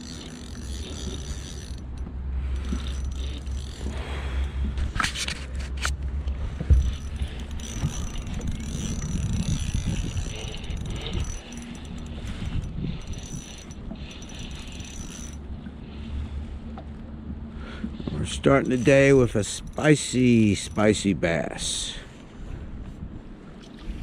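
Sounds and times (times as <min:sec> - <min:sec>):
fishing reel ratchet clicking: 0:00.0 - 0:06.0, 0:06.7 - 0:15.5, 0:18.2 - 0:21.8
wind buffeting microphone: 0:01.1 - 0:21.0.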